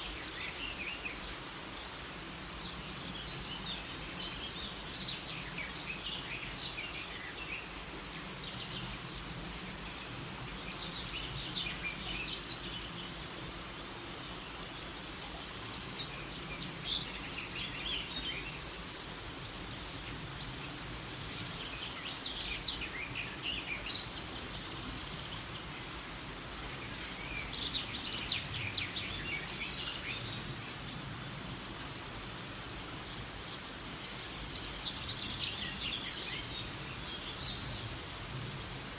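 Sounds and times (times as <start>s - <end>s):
buzzy insect trill: 0.0s - 1.0s, 4.4s - 5.7s, 10.0s - 11.4s, 14.6s - 16.0s, 20.3s - 21.9s, 26.3s - 27.8s, 31.7s - 33.0s
small birds chirping: 0.0s - 38.9s
steady hiss: 0.0s - 38.9s.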